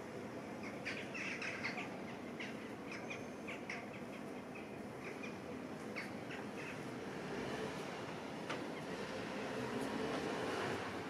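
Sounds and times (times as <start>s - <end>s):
outdoor background hiss: 0.0s - 11.0s
small birds chirping: 0.5s - 6.9s.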